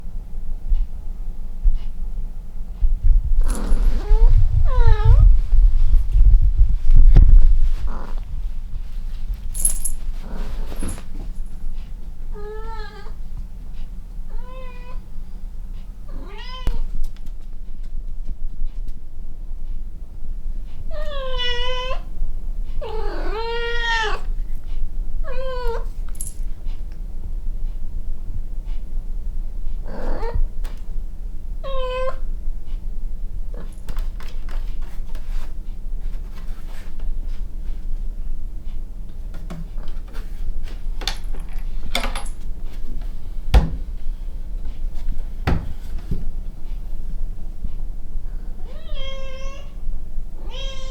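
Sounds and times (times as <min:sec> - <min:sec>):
steady low hum: 0:00.0 - 0:50.9
cat meowing: 0:12.4 - 0:13.2, 0:14.3 - 0:15.0, 0:16.1 - 0:16.8, 0:20.9 - 0:22.1, 0:22.8 - 0:24.3, 0:25.2 - 0:25.9, 0:31.6 - 0:32.2, 0:48.6 - 0:49.8, 0:50.4 - 0:50.9
thump: 0:43.5 - 0:43.9.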